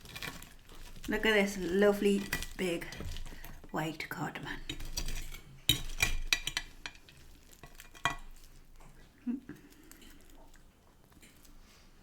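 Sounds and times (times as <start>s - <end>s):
fried fish batter crackling: 0.0s - 12.0s.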